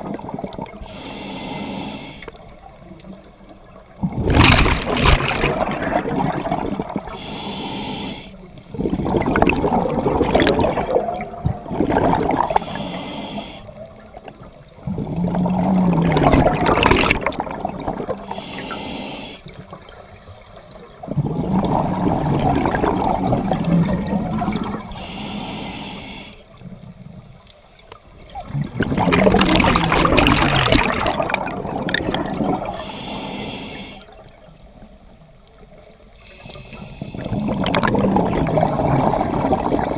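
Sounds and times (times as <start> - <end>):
exhaled bubbles rushing: 0.0 - 0.8, 4.0 - 7.2, 8.7 - 12.7, 14.8 - 18.4, 19.7 - 25.0, 28.2 - 32.9, 37.2 - 39.9
regulator hissing inhale: 0.8 - 2.4, 7.1 - 9.4, 12.5 - 13.8, 18.2 - 19.6, 23.8 - 26.6, 32.7 - 34.2, 36.2 - 37.6.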